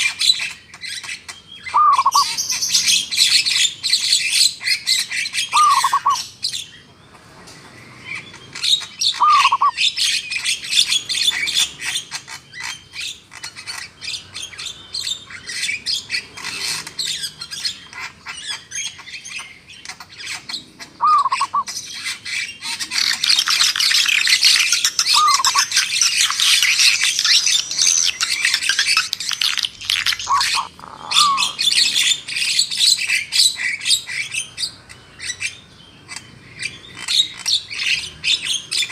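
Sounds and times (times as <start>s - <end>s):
birds chirping and trilling: 0.0s - 38.9s
low down-slurred bird call: 1.7s - 2.4s, 5.5s - 6.2s, 9.2s - 9.8s, 21.0s - 21.7s, 25.1s - 25.6s, 30.2s - 32.3s.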